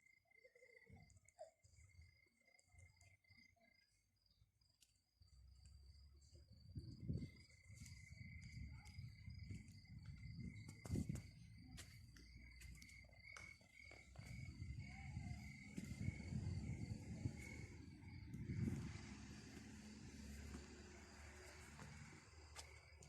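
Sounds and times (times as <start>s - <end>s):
cricket chirping: 0.0s - 23.0s
low outdoor rumble: 5.6s - 23.0s.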